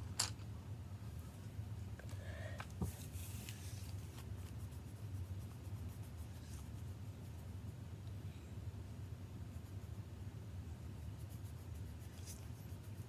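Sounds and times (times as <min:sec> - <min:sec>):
steady low hum: 0:00.0 - 0:13.0
pencil rubbing on paper: 0:03.0 - 0:07.6, 0:09.5 - 0:13.0.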